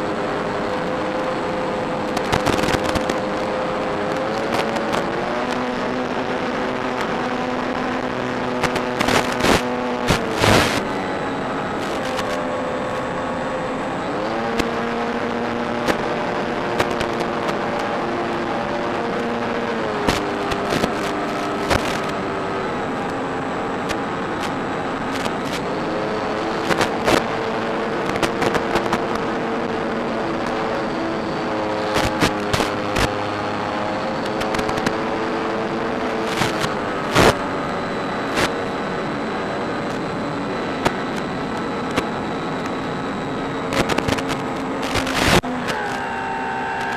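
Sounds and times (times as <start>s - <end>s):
model plane motor humming: 0.0s - 46.9s
bursts of crackle: 2.0s - 3.4s, 4.0s - 11.0s, 11.8s - 13.0s, 19.2s - 22.2s, 31.8s - 33.2s, 36.2s - 37.4s, 43.7s - 46.9s.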